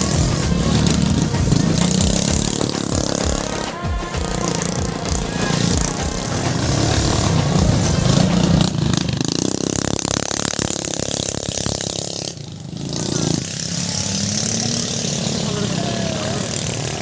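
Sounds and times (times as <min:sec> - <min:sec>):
scooter engines revving: 0:00.0 - 0:17.0.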